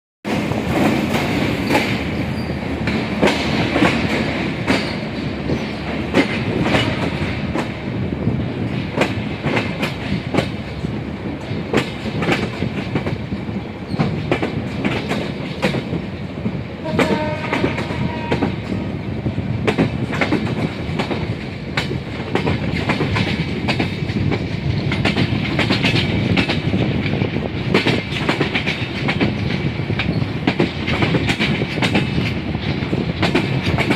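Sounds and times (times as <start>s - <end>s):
train wheels clicking on track: 0.2s - 33.9s
train horn tone: 16.8s - 19.0s.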